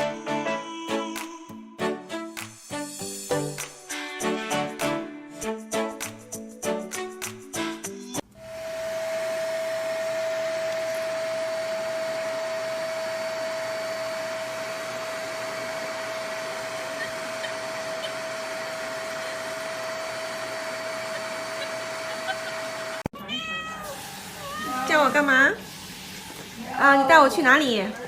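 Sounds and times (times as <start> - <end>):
electric blower whining: 8.2 - 23.1.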